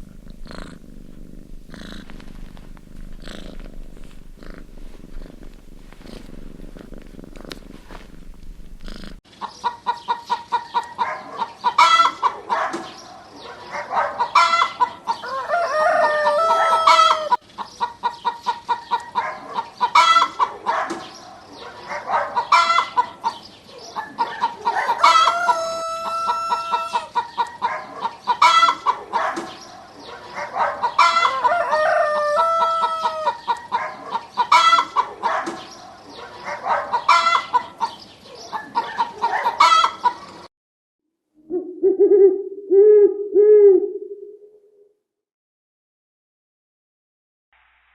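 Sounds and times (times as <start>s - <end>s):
cat purring: 0.0s - 9.2s
chickens clucking: 9.2s - 40.5s
rooster crowing: 14.3s - 17.4s, 24.2s - 27.2s, 30.8s - 33.5s, 39.1s - 40.1s.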